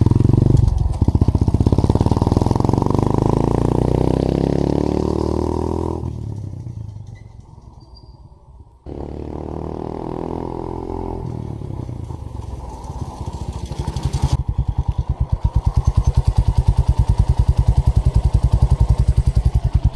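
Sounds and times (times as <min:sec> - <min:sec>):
engine running: 0:08.6 - 0:19.9.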